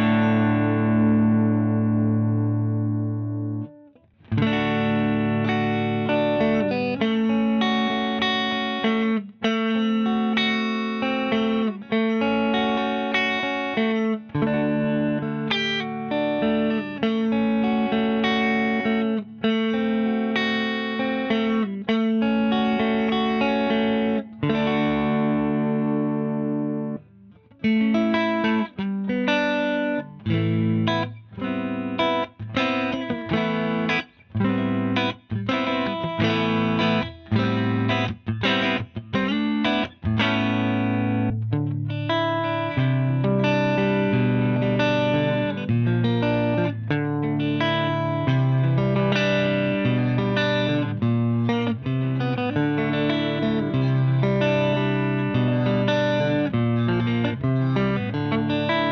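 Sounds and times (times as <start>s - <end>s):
electric guitar chords: 0.0s - 58.9s.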